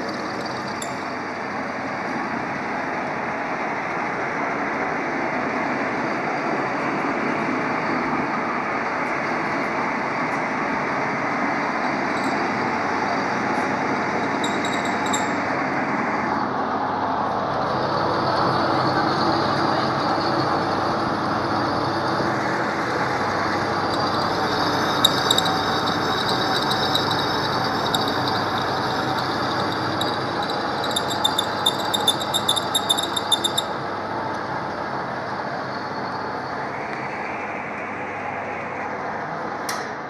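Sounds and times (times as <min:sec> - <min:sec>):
lathe running: 0:00.0 - 0:01.4, 0:11.9 - 0:16.2, 0:17.6 - 0:36.4.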